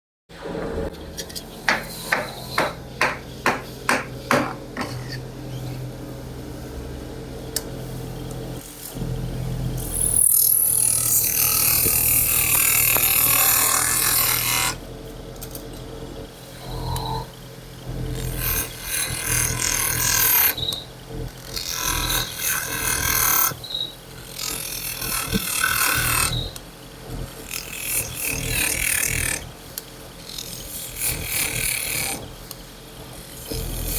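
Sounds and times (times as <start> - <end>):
low machine hum: 0.3 - 21.5
power tool grinding: 1.6 - 5.3
hammering strikes: 1.7 - 5.1.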